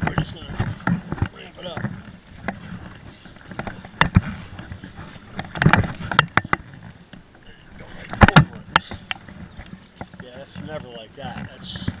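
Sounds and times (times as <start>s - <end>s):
kayak hull knocking on wood: 0.0s - 7.3s, 8.0s - 12.0s
paddle clunks: 0.0s - 12.0s.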